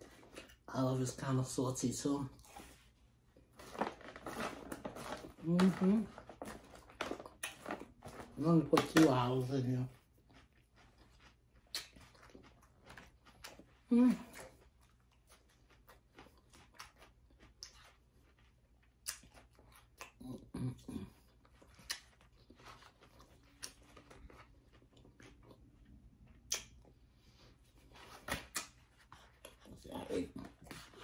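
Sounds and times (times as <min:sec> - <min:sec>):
person chewing salad: 0:02.3 - 0:31.0
crisp clicks and crunches: 0:03.6 - 0:13.6.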